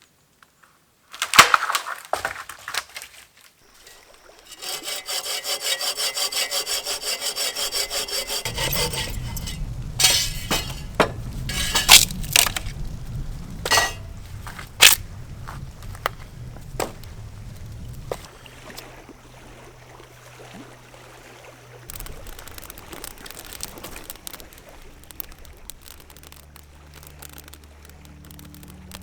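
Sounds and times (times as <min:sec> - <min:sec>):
sharp knocks and cracks: 0:01.1 - 0:03.2, 0:03.8 - 0:12.8, 0:13.7 - 0:17.1
hand saw cutting wood: 0:03.7 - 0:12.7, 0:13.7 - 0:14.2, 0:14.8 - 0:15.0.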